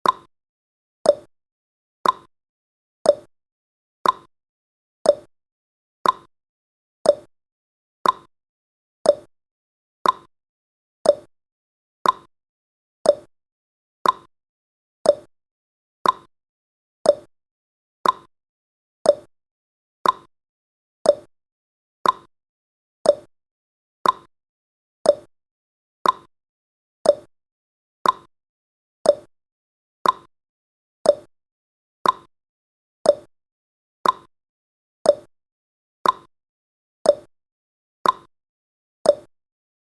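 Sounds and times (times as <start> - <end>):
clock ticking: 2.0 - 2.3, 4.0 - 4.3, 6.0 - 6.3, 8.0 - 8.3, 10.0 - 10.3, 12.0 - 12.3, 14.0 - 14.3, 15.1 - 15.3, 16.0 - 16.3, 18.0 - 18.3, 20.0 - 20.3, 22.0 - 22.3, 24.0 - 24.3, 25.1 - 25.3, 26.0 - 26.3, 27.1 - 27.3, 28.0 - 28.3, 29.1 - 29.3, 30.0 - 30.3, 32.0 - 32.3, 33.1 - 33.3, 34.0 - 34.3, 36.0 - 36.3, 38.0 - 38.3.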